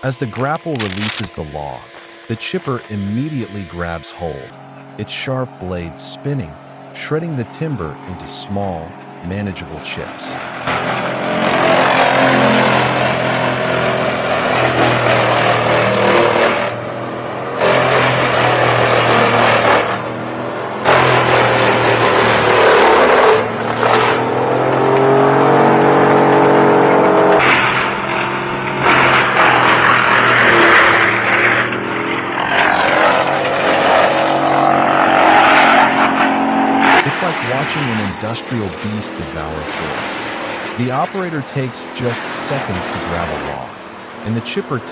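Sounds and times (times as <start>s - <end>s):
wood grinding: 0.0s - 4.5s, 10.3s - 16.8s, 17.6s - 20.2s, 24.9s - 41.3s
wood chipper engine drone: 0.0s - 44.9s.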